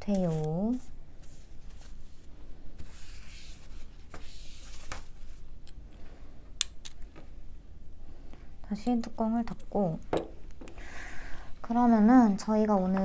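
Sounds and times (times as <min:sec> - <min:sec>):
soft rubbing of wiping: 0:00.4 - 0:05.5.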